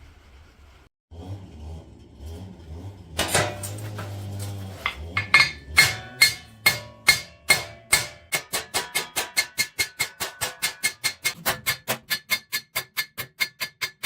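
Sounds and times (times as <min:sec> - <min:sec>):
hammer striking hot metal on anvil: 0:03.2 - 0:14.0.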